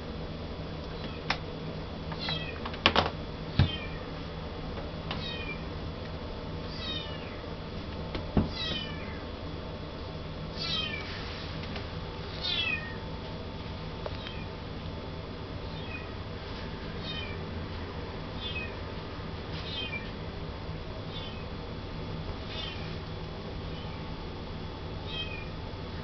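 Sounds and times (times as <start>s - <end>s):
kitten meowing: 10.6s - 11.0s, 14.2s - 14.5s.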